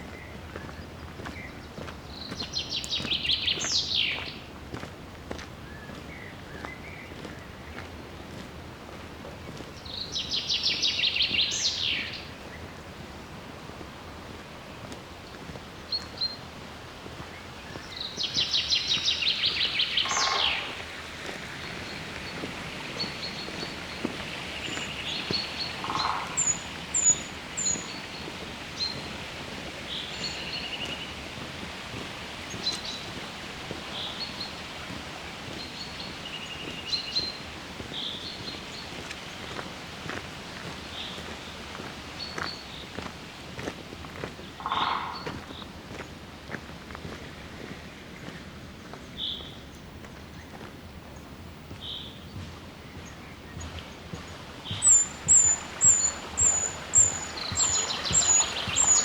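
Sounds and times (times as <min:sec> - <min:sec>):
songbird trills: 0:17.7 - 0:29.1, 0:44.2 - 0:45.7, 0:51.2 - 0:59.0
high bird chirps and calls: 0:18.3 - 0:20.8, 0:54.7 - 0:59.0.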